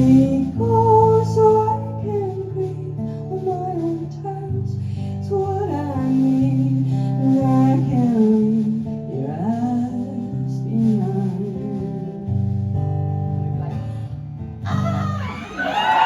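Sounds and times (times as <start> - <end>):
acoustic guitar chords: 0.0 - 15.9
crowd cheering and whooping: 14.6 - 16.0.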